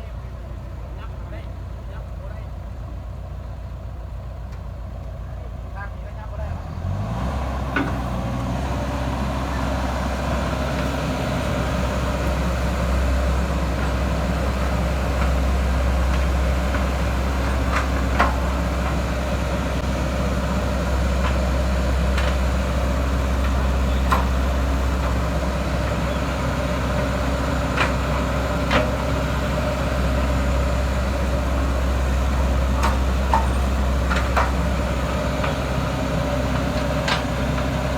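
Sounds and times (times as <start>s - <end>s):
diesel engine idling: 0.0s - 37.9s.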